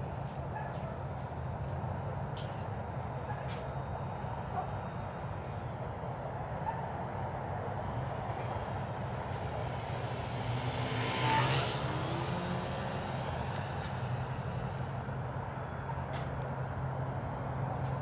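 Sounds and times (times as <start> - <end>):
remote-controlled aircraft flying past: 7.6 - 18.0.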